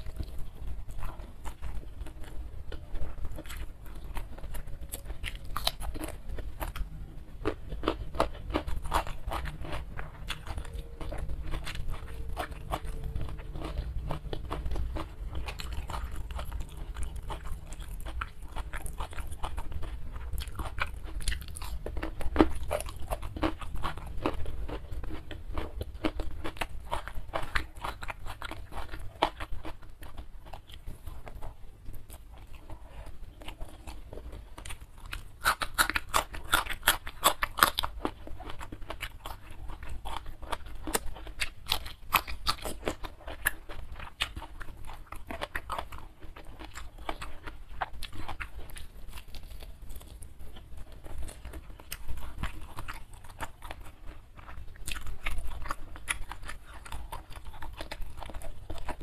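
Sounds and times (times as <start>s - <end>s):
crunchy chewing: 0.0s - 59.0s.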